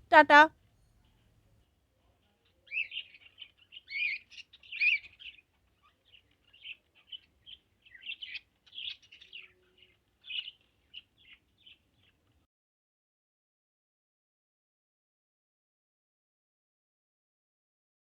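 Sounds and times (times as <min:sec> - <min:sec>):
small cage birds chirping: 0:00.7 - 0:12.4.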